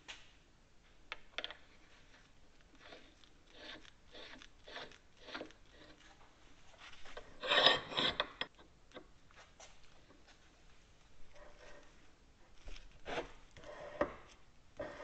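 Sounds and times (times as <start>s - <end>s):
soft rubbing rasping strokes: 1.8s - 8.2s
metal bar scraping: 2.8s - 6.1s, 7.0s - 8.6s.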